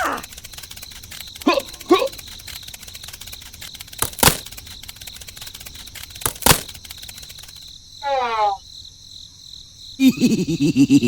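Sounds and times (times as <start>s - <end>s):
fine rapid ticking: 0.0s - 7.8s
sharp knocks: 4.0s - 4.6s, 6.3s - 6.8s.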